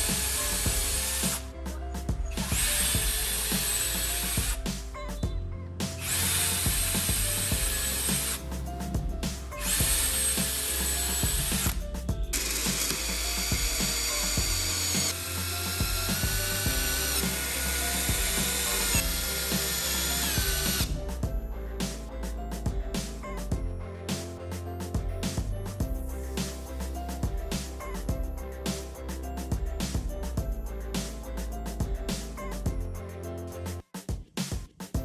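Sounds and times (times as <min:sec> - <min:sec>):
electric power tool whine: 0:00.0 - 0:01.4, 0:02.4 - 0:04.6, 0:06.0 - 0:08.4, 0:09.6 - 0:20.9
background music: 0:00.0 - 0:34.0.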